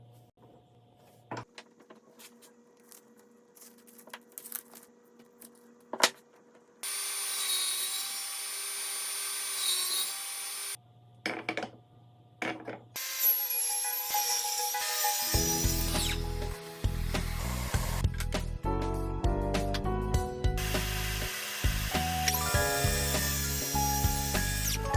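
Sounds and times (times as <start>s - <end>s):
power tool cutting wood: 6.8s - 10.8s, 13.0s - 18.1s, 20.6s - 24.9s.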